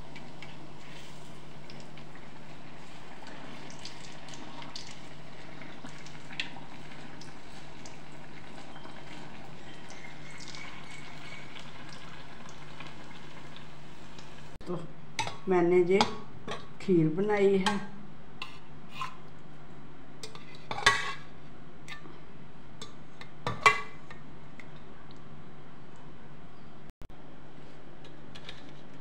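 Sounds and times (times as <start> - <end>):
food sizzling in hot fat: 0.0 - 14.6.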